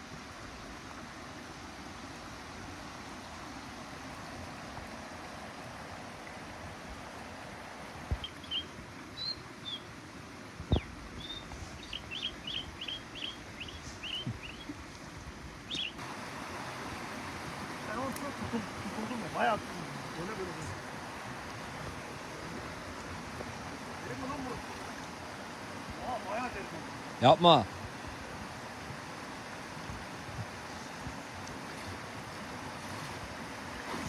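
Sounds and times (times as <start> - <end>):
small bird chirping: 10.7 - 14.7, 15.7 - 16.0.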